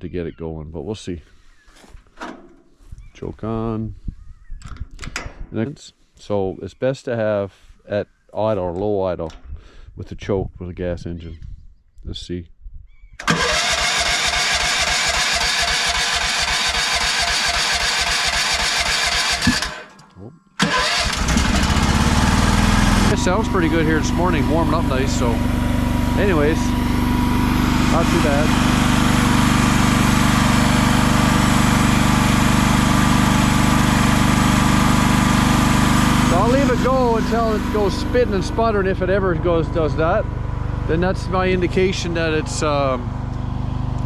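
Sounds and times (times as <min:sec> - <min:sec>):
small gasoline engine idling: 0:13.3 - 0:19.8, 0:20.6 - 0:44.0.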